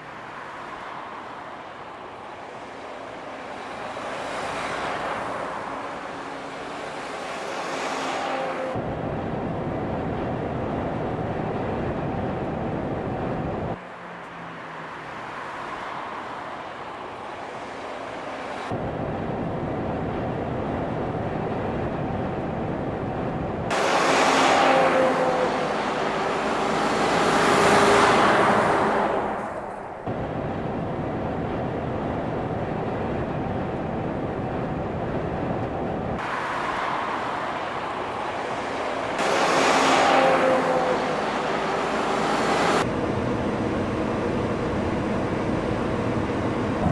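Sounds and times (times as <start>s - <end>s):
heavy truck driving on road: 0.0s - 46.9s
vehicle passing close by: 23.7s - 30.0s, 36.2s - 43.0s.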